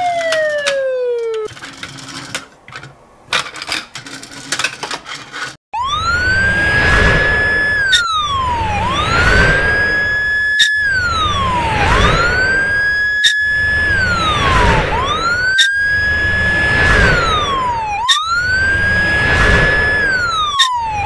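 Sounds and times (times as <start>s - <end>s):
police siren wailing: 0.0s - 1.5s, 5.8s - 21.0s.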